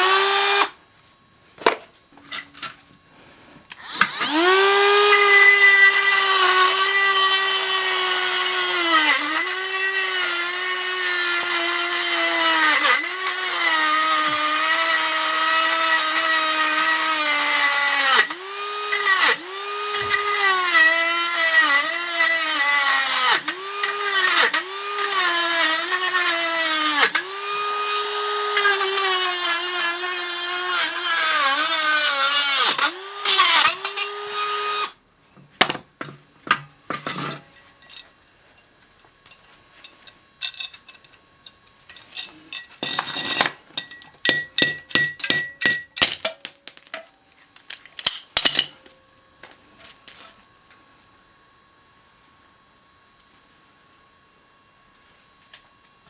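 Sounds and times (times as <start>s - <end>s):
power tool motor whine: 0.0s - 0.8s, 3.7s - 35.0s
small metal parts clinking: 37.0s - 38.2s, 39.2s - 44.1s, 46.0s - 47.1s.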